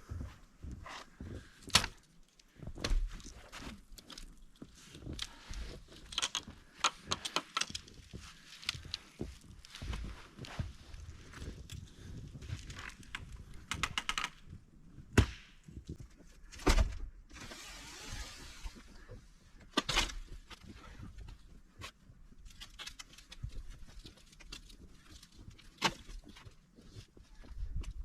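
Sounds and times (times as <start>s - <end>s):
footsteps: 0.0s - 16.4s.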